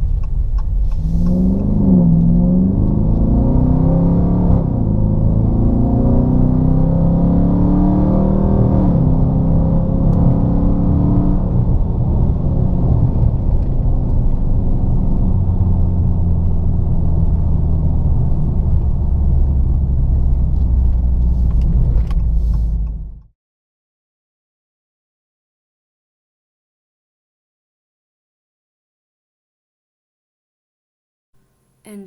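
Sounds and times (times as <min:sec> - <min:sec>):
car engine deep rumble: 0:00.0 - 0:23.3.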